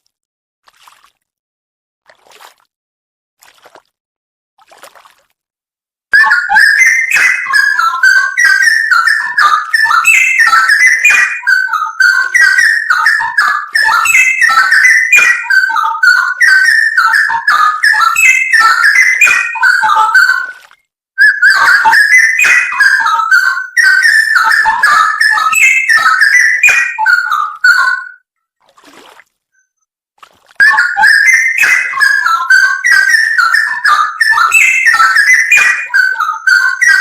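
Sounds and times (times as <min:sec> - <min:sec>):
bird singing whistled warbling: 0:06.2 - 0:20.6, 0:21.2 - 0:28.2, 0:30.6 - 0:37.0.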